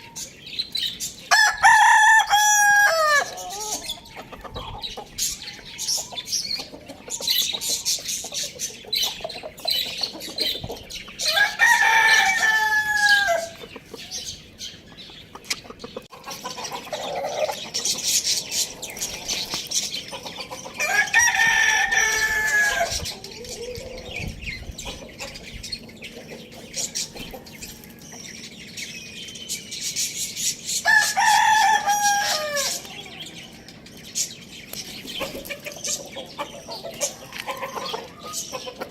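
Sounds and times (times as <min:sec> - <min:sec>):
small birds chirping: 0:00.0 - 0:38.9
rooster crowing: 0:01.3 - 0:03.8, 0:11.2 - 0:13.6, 0:20.8 - 0:23.1, 0:30.8 - 0:33.1
hens clucking: 0:01.4 - 0:28.7, 0:34.6 - 0:38.9.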